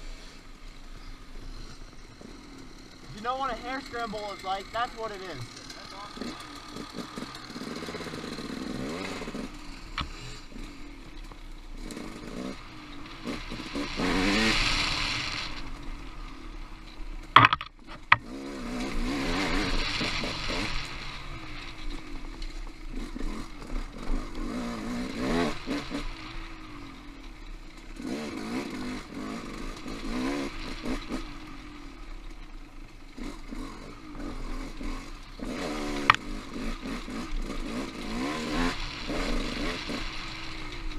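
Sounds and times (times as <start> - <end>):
motorcycle engine revving: 0.0 - 40.9
sharp knocks: 17.4 - 18.2.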